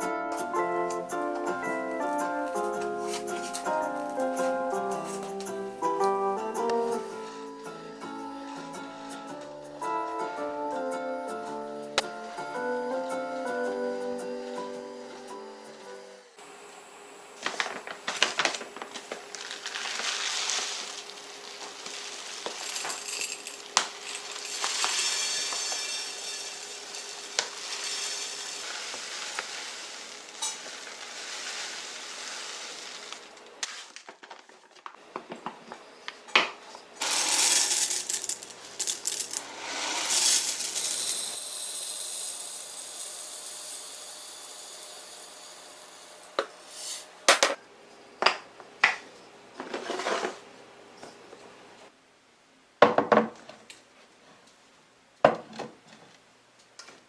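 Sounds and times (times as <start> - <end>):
dishes and utensils clinking: 19.9 - 33.2
hissing noise: 19.9 - 33.5.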